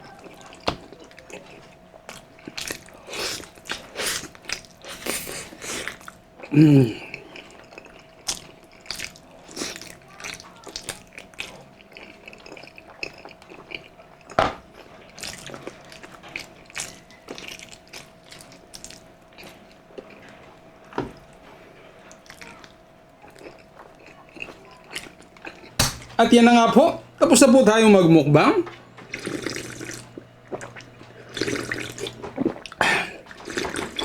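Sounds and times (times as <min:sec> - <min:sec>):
faint steady hum: 0:00.0 - 0:34.0
wet chewing and sucking: 0:00.2 - 0:20.4, 0:29.0 - 0:34.0
sharp knocks: 0:25.8 - 0:26.2.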